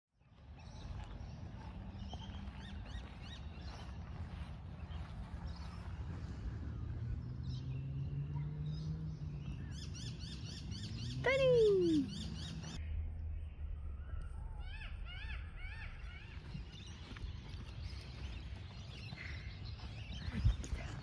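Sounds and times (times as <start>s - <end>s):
birds chirping: 0.2s - 21.0s
low rumble: 12.2s - 21.0s.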